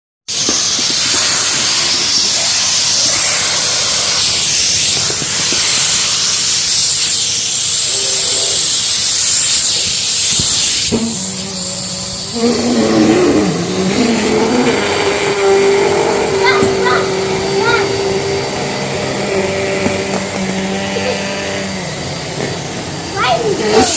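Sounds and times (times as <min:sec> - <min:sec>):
vacuum cleaner running: 0:00.3 - 0:23.9
wavering tones: 0:10.9 - 0:23.6.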